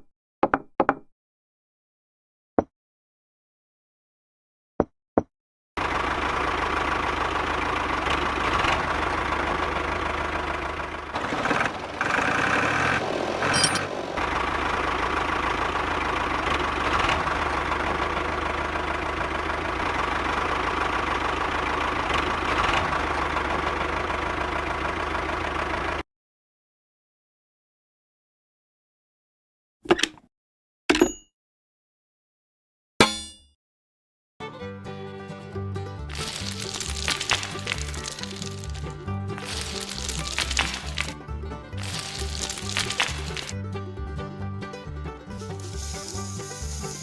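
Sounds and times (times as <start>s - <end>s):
engine idling: 5.8s - 26.0s, 36.0s - 47.0s.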